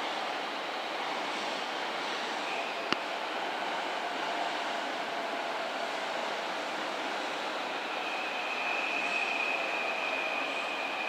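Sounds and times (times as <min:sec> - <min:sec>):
train wheels squealing: 0:02.4 - 0:02.9, 0:07.7 - 0:11.0.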